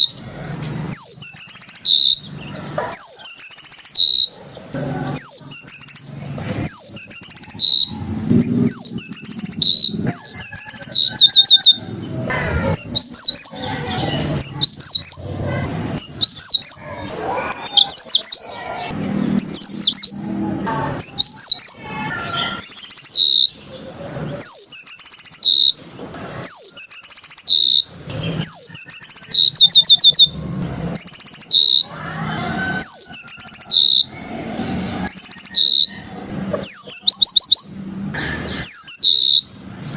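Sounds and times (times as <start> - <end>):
canary singing: 0.0 - 39.9
low background rumble: 4.6 - 22.7.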